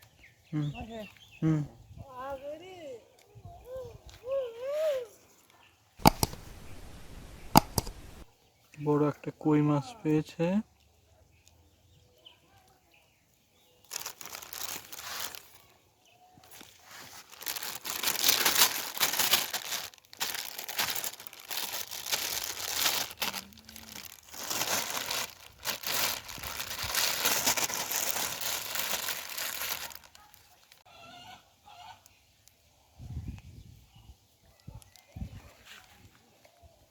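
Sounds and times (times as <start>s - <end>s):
rustling and crinkling: 6.0s - 8.3s, 13.8s - 15.8s, 16.4s - 30.8s.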